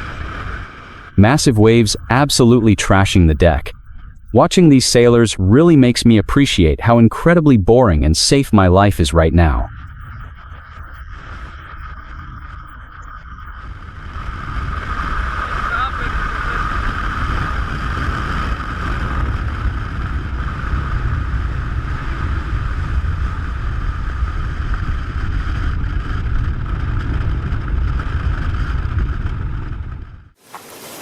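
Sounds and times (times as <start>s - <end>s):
high steady whine: 0.0s - 29.1s
deep rumble of wind and water: 9.7s - 30.4s
wind buffeting microphone: 13.4s - 30.3s.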